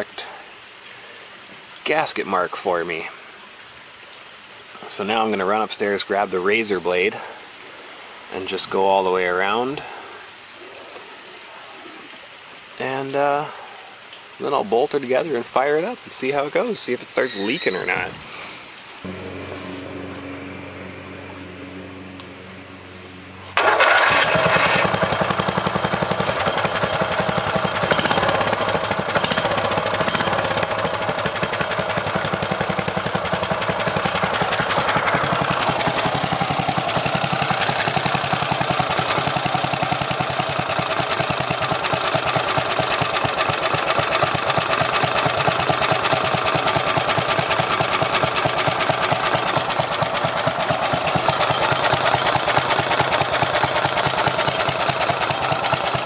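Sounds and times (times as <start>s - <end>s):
lawn tractor engine running: 19.1s - 56.0s.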